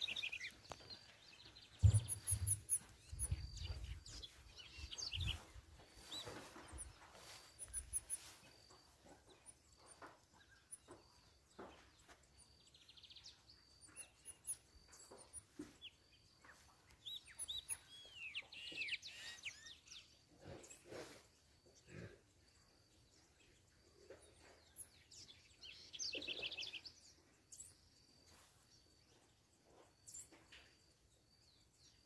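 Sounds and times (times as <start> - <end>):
songbirds chirping and whistling: 0.0 - 32.0
low thumps: 1.8 - 4.0.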